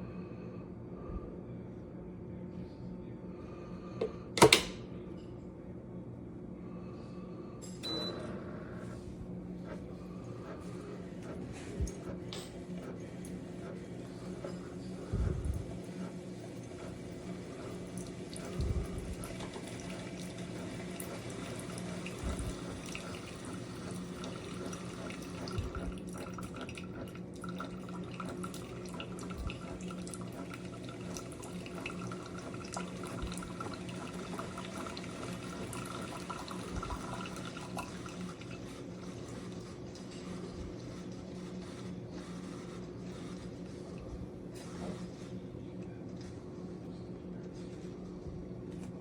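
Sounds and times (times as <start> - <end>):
coffee maker pump hum: 0.0 - 5.1, 6.1 - 49.0
water running and dripping: 15.5 - 40.1.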